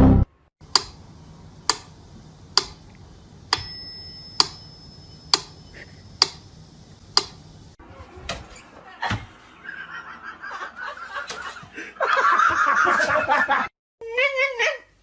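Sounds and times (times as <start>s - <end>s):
short bell-like ring: 3.6s - 5.7s.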